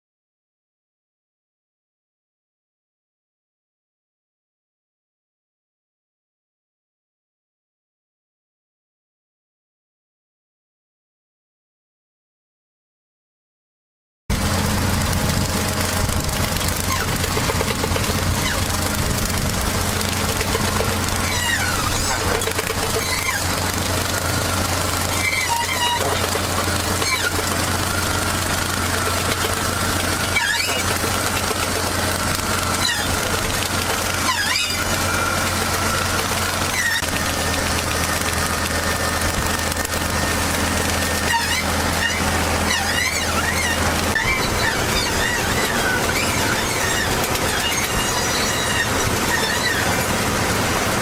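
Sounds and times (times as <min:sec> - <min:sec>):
farm machinery engine running: 0:14.3 - 0:51.0.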